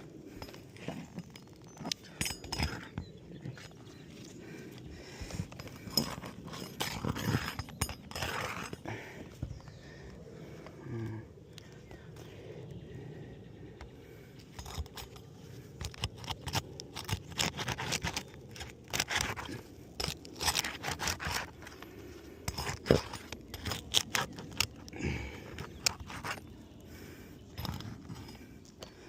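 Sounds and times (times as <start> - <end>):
sharp clicks and cracks: 14.4 - 29.0.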